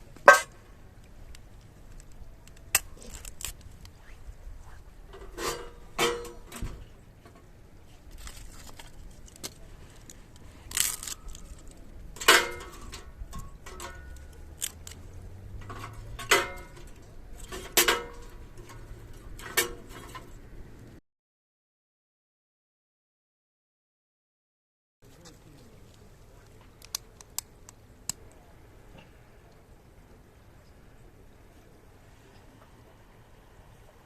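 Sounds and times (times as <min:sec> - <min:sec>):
sheet metal parts clanking: 0:05.1 - 0:06.8, 0:12.2 - 0:15.0, 0:15.6 - 0:20.4.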